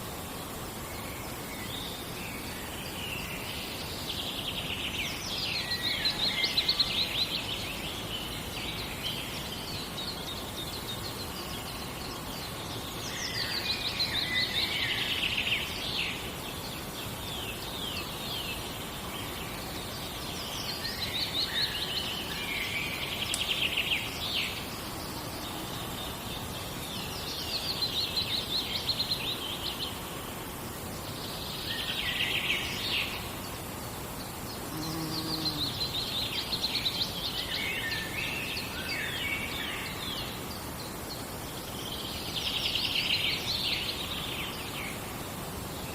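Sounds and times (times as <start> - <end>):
forest ambience hiss: 0.0 - 45.9.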